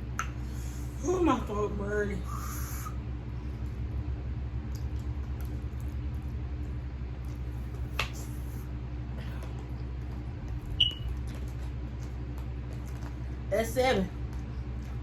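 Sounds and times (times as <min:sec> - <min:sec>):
low room hum: 0:00.0 - 0:15.0
faint eating clicks: 0:03.5 - 0:08.4, 0:09.2 - 0:15.0.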